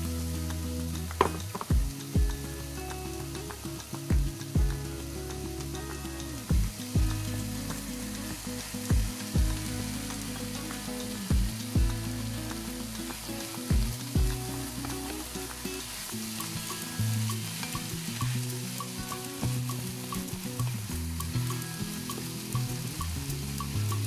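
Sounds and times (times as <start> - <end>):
background music with heavy beats: 0.0 - 18.0
food sizzling in oil: 0.0 - 24.0.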